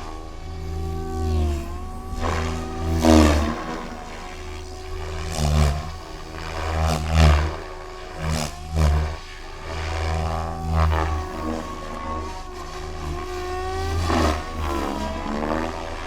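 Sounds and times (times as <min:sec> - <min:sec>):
rc helicopter motor and rotor: 0:00.0 - 0:16.0
whooshing rotor surges: 0:00.0 - 0:16.0.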